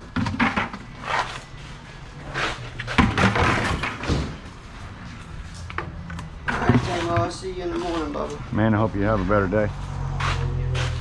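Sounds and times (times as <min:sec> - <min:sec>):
clunks and knocks: 0:02.9 - 0:04.5, 0:05.7 - 0:07.4.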